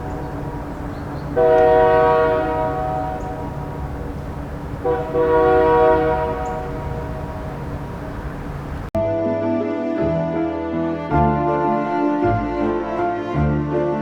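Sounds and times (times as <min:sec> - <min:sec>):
train horn blasts: 0:00.0 - 0:08.2
steady low rumble: 0:02.7 - 0:05.2, 0:06.2 - 0:09.0.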